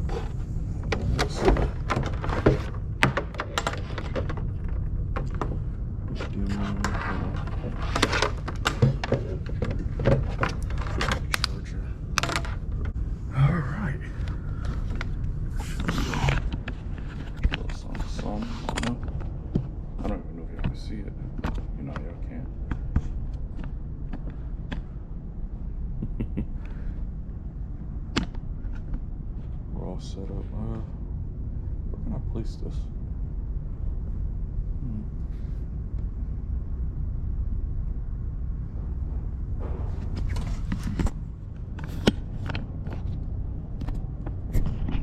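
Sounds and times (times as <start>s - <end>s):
steady low rumble: 0.0s - 45.0s
objects clicking and knocking: 0.8s - 13.0s.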